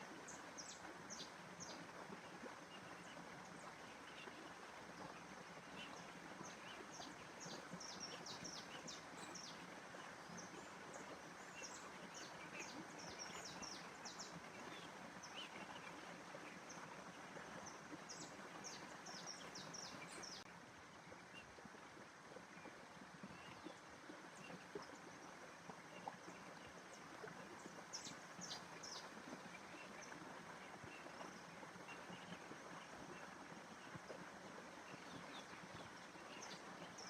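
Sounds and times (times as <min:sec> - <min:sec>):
small birds chirping: 0:05.0 - 0:20.5, 0:27.5 - 0:33.8.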